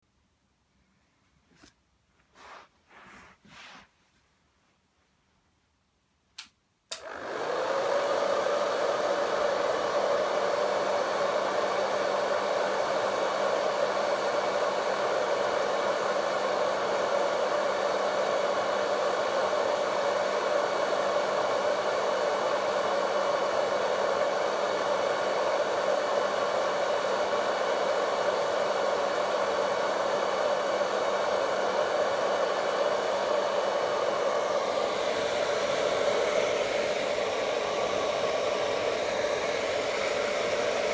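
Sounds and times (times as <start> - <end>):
hair dryer switch click: 6.4 - 7.4
hair dryer blowing air: 6.9 - 40.9.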